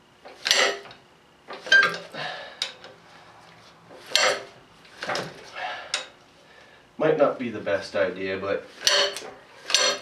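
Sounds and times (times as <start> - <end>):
breaker bar clanking on metal: 0.3 - 2.9, 4.1 - 6.1, 8.8 - 10.0.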